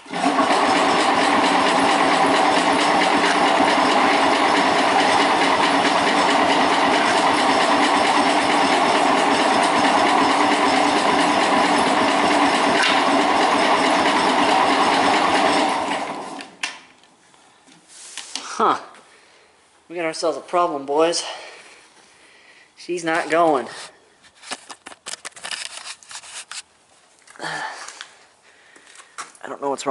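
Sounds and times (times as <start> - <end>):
tractor engine cranking on starter: 0.0 - 16.8.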